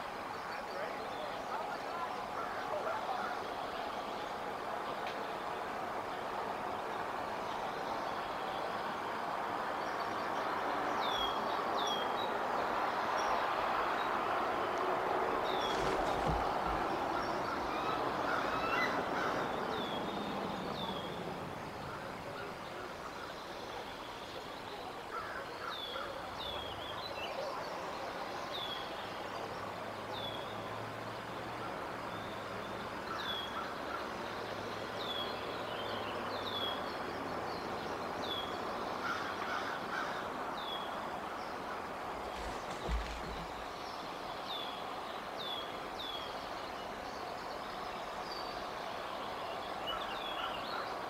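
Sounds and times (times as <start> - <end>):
outdoor hiss: 27.8 - 51.0.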